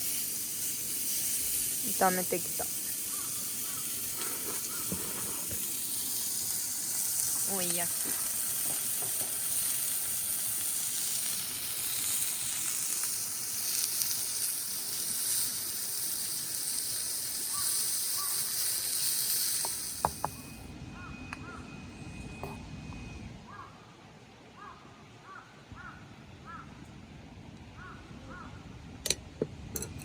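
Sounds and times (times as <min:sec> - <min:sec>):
steady hissing: 0:00.0 - 0:20.7.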